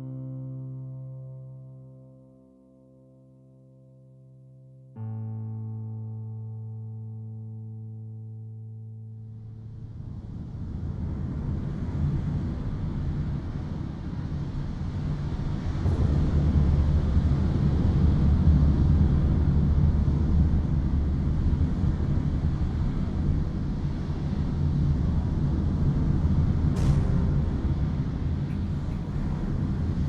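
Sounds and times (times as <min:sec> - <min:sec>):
loud low rumble: 0:14.2 - 0:30.0.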